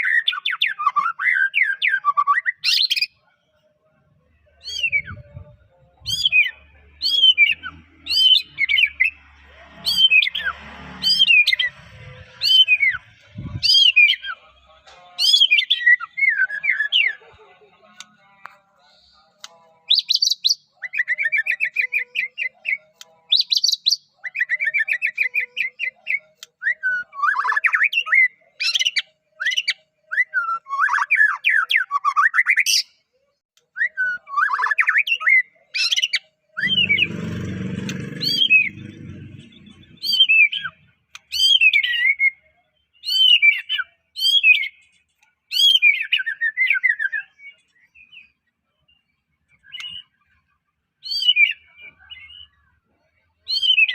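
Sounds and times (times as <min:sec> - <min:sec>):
bird singing whistles and trills: 0:04.6 - 0:05.5, 0:06.1 - 0:09.1, 0:19.9 - 0:32.9, 0:40.0 - 0:44.8, 0:45.5 - 0:48.4, 0:49.0 - 0:50.2, 0:51.0 - 0:52.6, 0:53.5 - 0:53.9.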